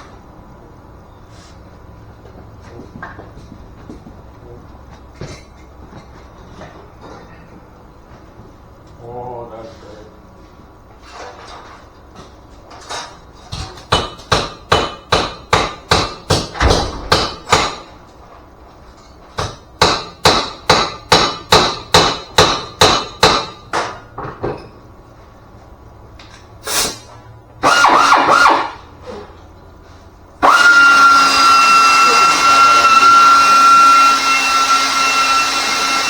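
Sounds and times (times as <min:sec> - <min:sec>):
hammer striking metal: 0:13.6 - 0:18.0, 0:19.4 - 0:24.0.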